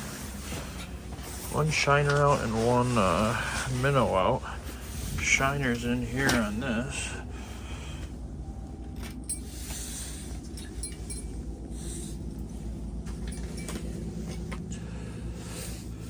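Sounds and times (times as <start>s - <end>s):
steady low rumble: 0.0s - 16.0s
small clinks and taps: 10.4s - 11.4s, 13.1s - 14.6s.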